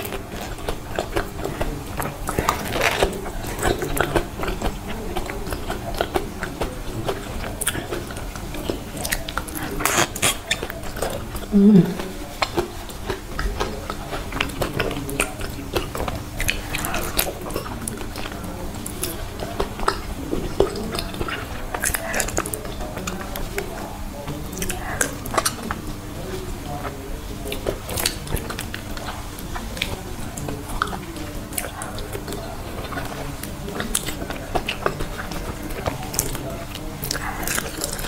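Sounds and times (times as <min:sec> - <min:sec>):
wet chewing and smacking: 0:00.0 - 0:38.0
person humming: 0:11.5 - 0:12.1.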